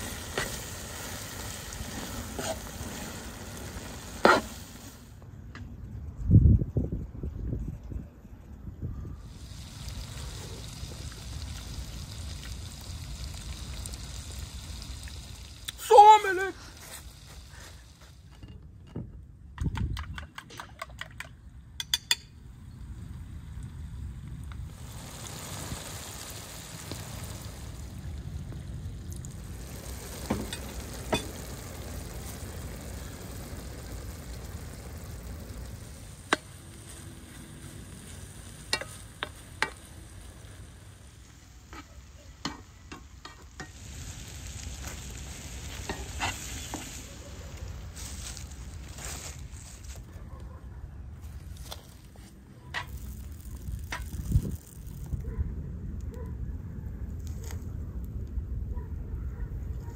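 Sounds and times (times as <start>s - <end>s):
food sizzling in frying pan: 0.0s - 5.1s, 9.2s - 18.3s, 24.6s - 49.8s.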